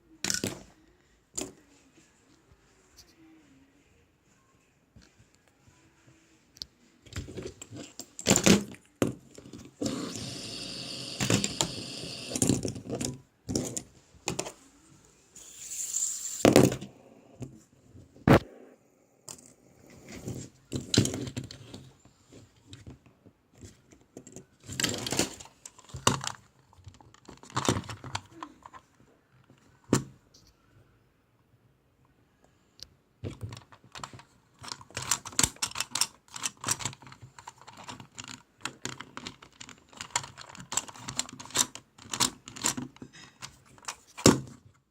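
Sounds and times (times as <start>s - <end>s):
plastic toys clicking and rattling: 7.1s - 14.5s, 23.6s - 29.0s, 33.3s - 44.5s.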